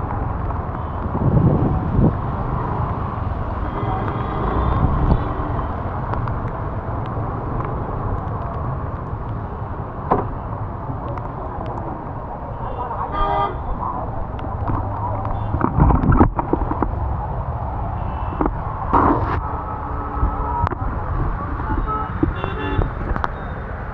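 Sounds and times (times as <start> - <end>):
road and traffic noise: 0.0 - 23.9.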